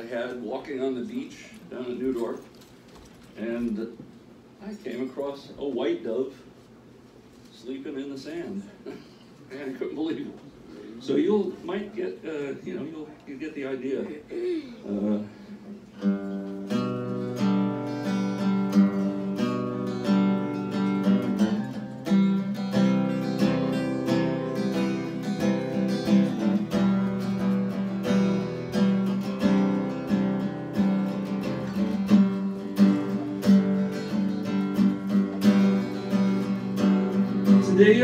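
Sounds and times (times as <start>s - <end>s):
acoustic guitar picking and strumming: 15.9s - 38.0s.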